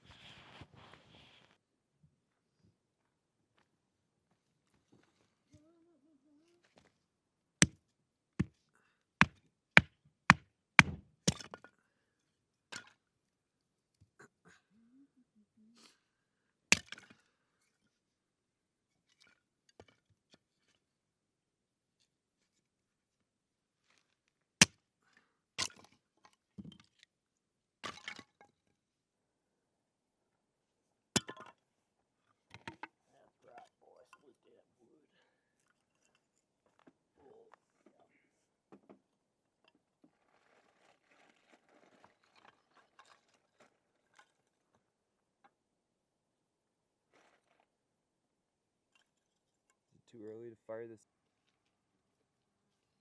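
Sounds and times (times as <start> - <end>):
sharp chopping strikes: 10.3 - 11.4.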